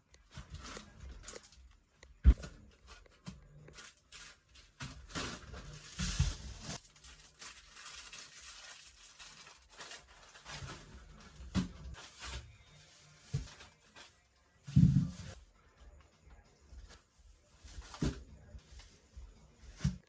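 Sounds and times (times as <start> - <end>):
rustling: 2.4 - 15.4.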